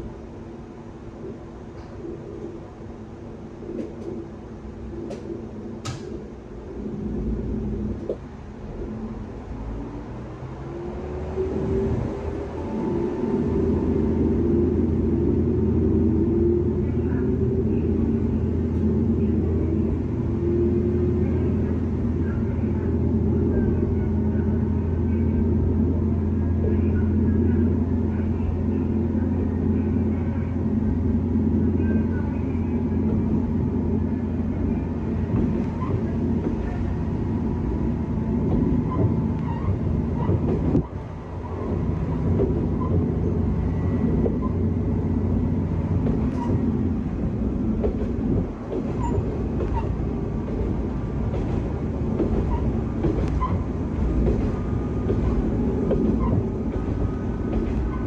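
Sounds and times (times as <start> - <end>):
diesel engine humming: 0.0 - 58.0
rail noise: 0.0 - 58.0
wheels clicking over track: 47.7 - 58.0.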